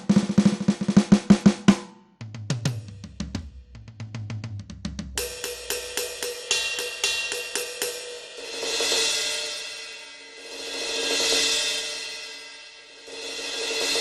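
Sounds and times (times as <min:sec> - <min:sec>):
bright cymbal strikes: 0:05.2 - 0:14.0.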